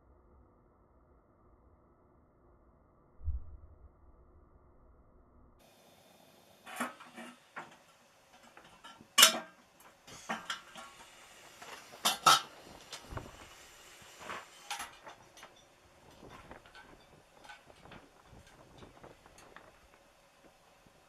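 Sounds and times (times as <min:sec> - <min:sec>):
hard objects clicking and knocking: 0:06.7 - 0:13.5.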